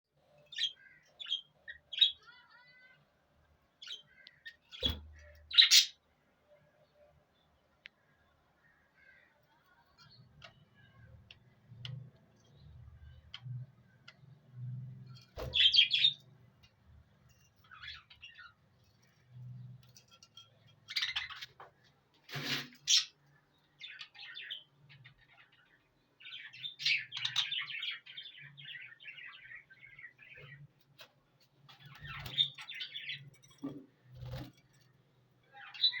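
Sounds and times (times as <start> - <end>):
parrots chirping and chattering: 0.4 - 3.1, 3.8 - 6.0, 15.1 - 21.8, 22.4 - 30.7, 31.7 - 36.0.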